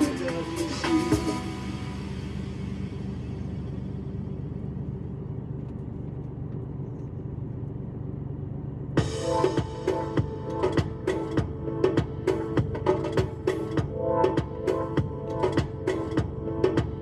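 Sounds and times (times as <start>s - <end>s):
music: 0.0s - 4.0s, 9.0s - 17.0s
truck engine and road noise: 0.0s - 17.0s.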